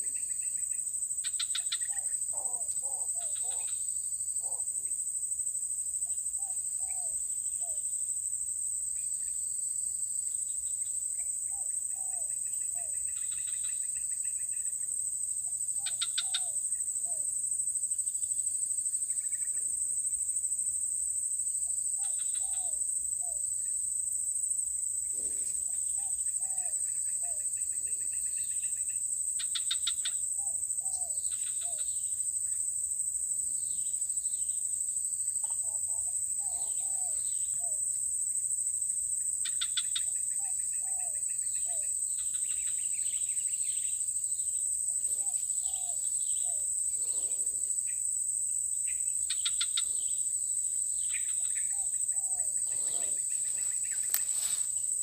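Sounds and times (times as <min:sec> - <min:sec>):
rapid pulsed bird trill: 0:06.0 - 0:08.1, 0:10.2 - 0:17.4, 0:21.9 - 0:23.8, 0:24.7 - 0:32.7, 0:39.2 - 0:55.0
high-pitched insect drone: 0:21.7 - 0:55.0.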